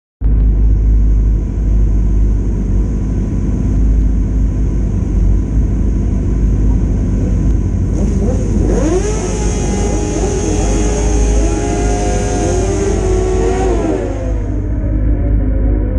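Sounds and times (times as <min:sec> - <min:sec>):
motorcycle engine revving: 0:06.5 - 0:15.5.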